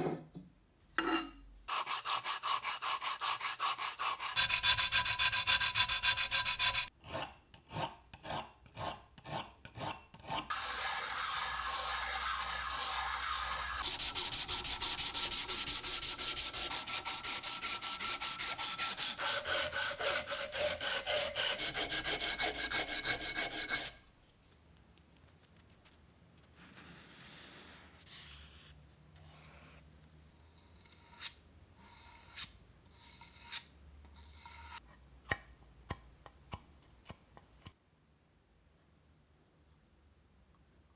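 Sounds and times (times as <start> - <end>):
hand sanding strokes: 1.7 - 6.9, 10.5 - 24.0.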